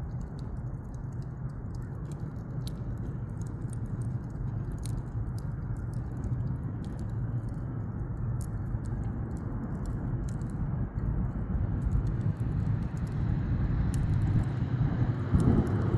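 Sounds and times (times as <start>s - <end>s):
campfire crackling and popping: 0.0s - 15.9s.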